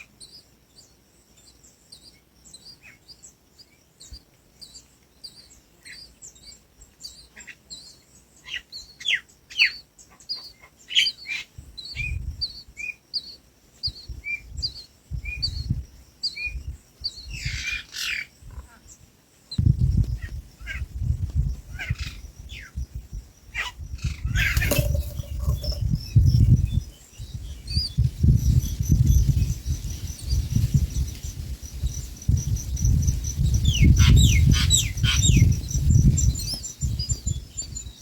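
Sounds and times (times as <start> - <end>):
small birds chirping: 0.0 - 38.0.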